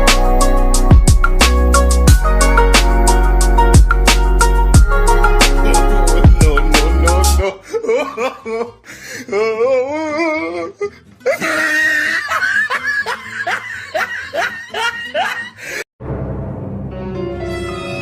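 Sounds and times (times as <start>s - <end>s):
comic laughter with music: 5.2s - 8.8s, 10.8s - 15.8s.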